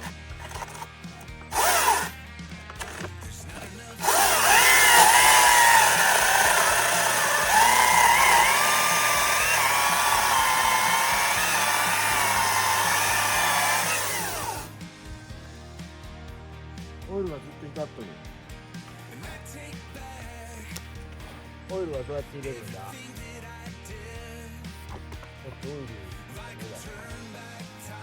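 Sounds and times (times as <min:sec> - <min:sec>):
electric chainsaw whining: 0:00.0 - 0:14.8.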